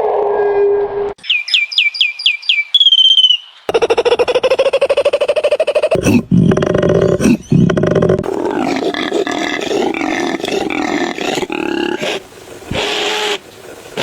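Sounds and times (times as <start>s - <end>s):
low pulsing animal call: 3.7s - 14.0s
wavering animal call: 3.7s - 14.0s.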